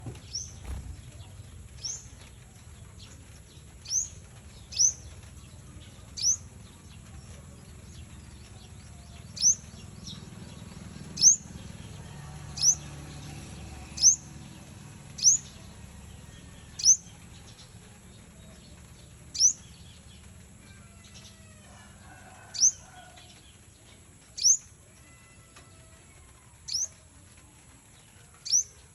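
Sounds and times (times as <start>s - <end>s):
bird chirping: 0.1s - 11.9s, 12.6s - 20.3s.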